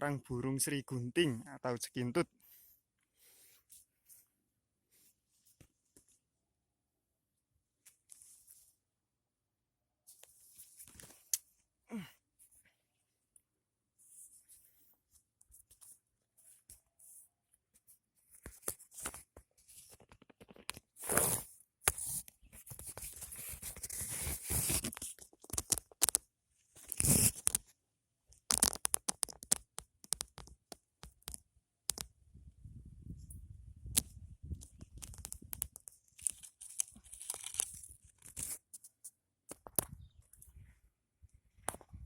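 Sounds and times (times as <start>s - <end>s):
leaves and twigs rustling: 34.7s - 38.5s.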